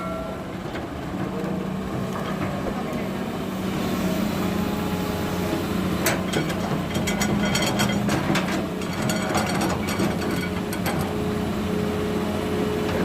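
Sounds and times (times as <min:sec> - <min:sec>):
heavy machinery diesel engine: 0:00.0 - 0:13.0
metallic clanks and squeaks: 0:06.0 - 0:11.1.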